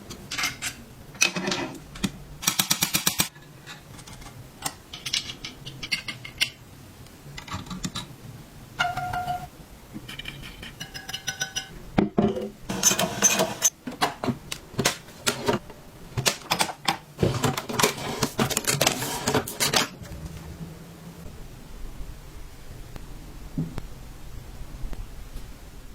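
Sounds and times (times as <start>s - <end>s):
metal parts clicking and clattering: 0.3s - 6.6s.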